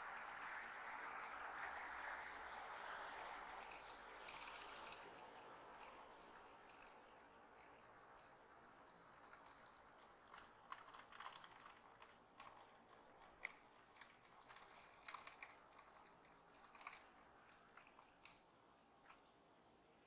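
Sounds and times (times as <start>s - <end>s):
birds pecking and cracking seed: 9.0s - 19.2s.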